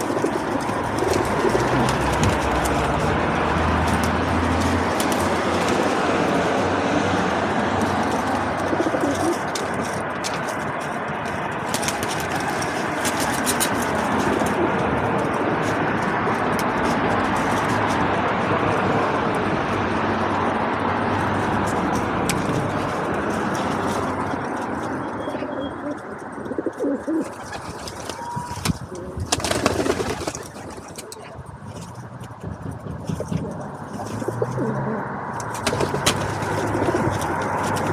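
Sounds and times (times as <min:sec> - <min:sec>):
pigeons cooing: 0:00.0 - 0:10.4, 0:25.1 - 0:31.4, 0:33.1 - 0:37.9
steady rushing noise: 0:00.0 - 0:25.1.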